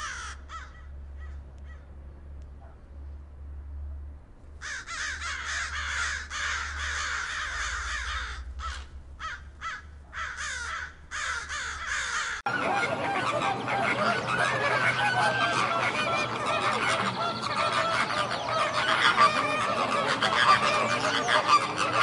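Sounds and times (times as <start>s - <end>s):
crows cawing: 0.0s - 1.9s, 4.6s - 22.0s
flamingos honking and grunting: 10.1s - 22.0s.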